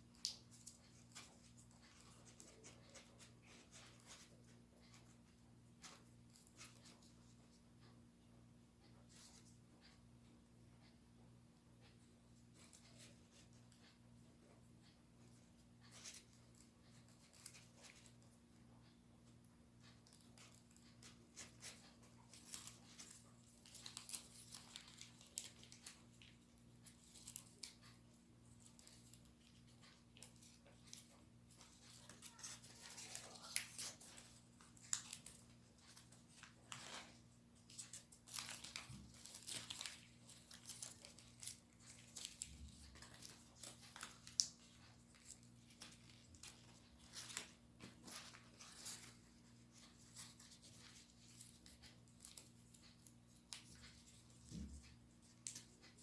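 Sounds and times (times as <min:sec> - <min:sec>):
paper rustling and crinkling: 0:19.9 - 0:56.0.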